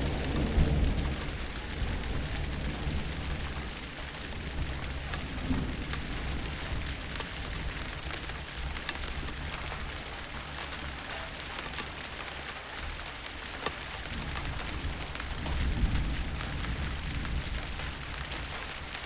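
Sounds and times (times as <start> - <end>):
distant thunder rumbling: 0.0 - 8.4
steady rainfall: 0.0 - 19.0.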